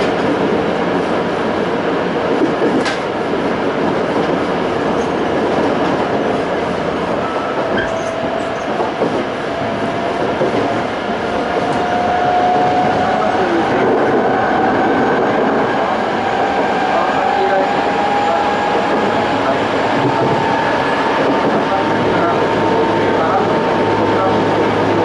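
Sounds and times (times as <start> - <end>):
train wheel and rail rumble: 0.0 - 25.0
rail-joint click: 2.4 - 3.1, 7.2 - 9.2.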